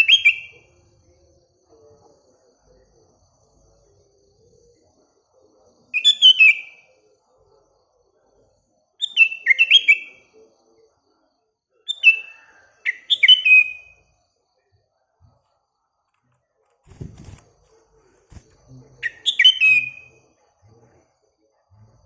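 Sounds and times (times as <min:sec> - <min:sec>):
bird whistled song: 0:00.0 - 0:00.6, 0:06.0 - 0:06.8, 0:09.0 - 0:10.2, 0:11.9 - 0:14.0, 0:19.0 - 0:20.2.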